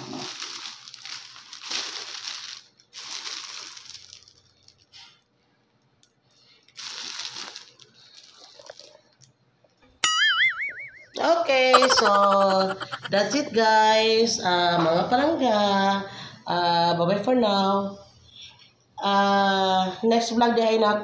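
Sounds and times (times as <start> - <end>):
plastic bags crinkling: 0.0 - 4.9, 6.7 - 9.2.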